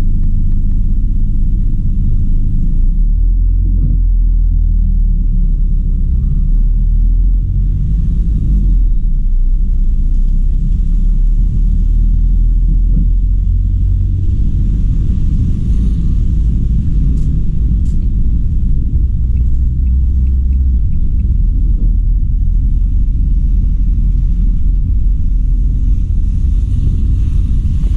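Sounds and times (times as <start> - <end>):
car road and engine rumble: 0.0 - 27.9
faint light ticks: 17.0 - 25.0.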